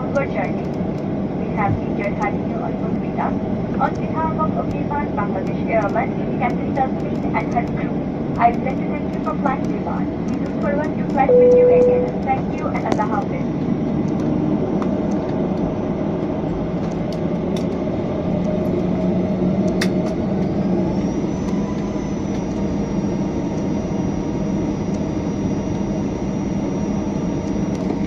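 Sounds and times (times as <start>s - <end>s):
airliner engine rumble: 0.0s - 28.0s
high whine: 11.2s - 13.1s.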